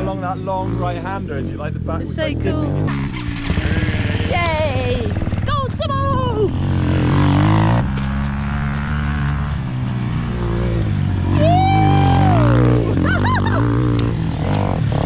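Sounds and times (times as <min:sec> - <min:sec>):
motorbike engine revving: 0:00.0 - 0:15.0
person cheering: 0:11.4 - 0:13.6.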